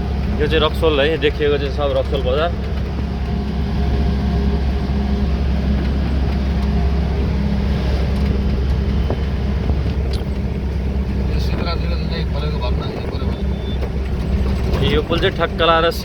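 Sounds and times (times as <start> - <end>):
truck engine droning: 0.0 - 16.0
tyre and wind noise: 1.4 - 15.8.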